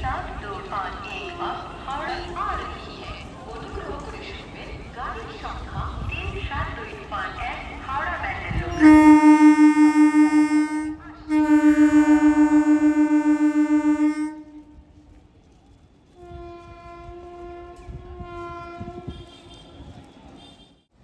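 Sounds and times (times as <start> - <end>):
train horn blasts: 8.6 - 15.0, 16.1 - 20.9
faint higher horn: 8.7 - 15.1.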